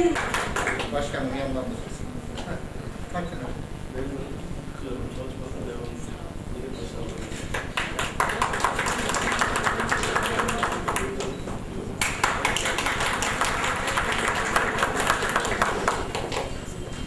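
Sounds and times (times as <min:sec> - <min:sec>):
audience applauding: 0:00.0 - 0:01.1, 0:07.5 - 0:11.4, 0:12.0 - 0:16.6.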